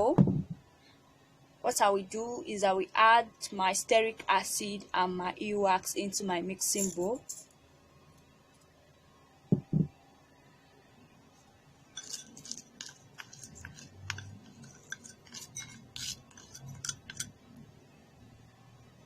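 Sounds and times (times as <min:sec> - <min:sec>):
dull thumps: 0:09.5 - 0:10.0
spoon clinking against mixing bowl: 0:12.0 - 0:17.3.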